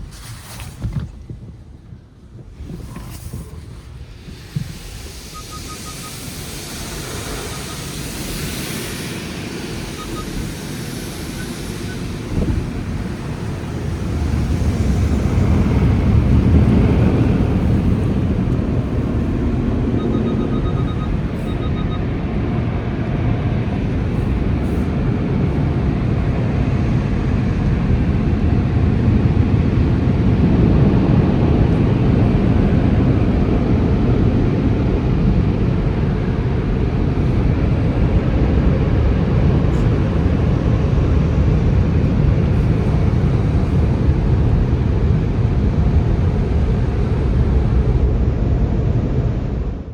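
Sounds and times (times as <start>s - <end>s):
dryer blowers blowing: 0.0s - 48.2s
water spray hiss: 3.9s - 19.8s
faint beeps: 5.3s - 6.2s, 7.4s - 7.9s, 9.9s - 10.4s, 19.6s - 22.1s.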